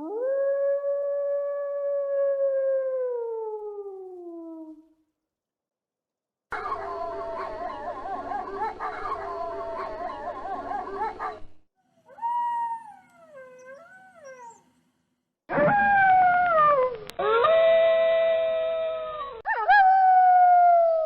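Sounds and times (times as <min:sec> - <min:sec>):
wolves howling: 0:06.5 - 0:11.4, 0:12.1 - 0:14.6.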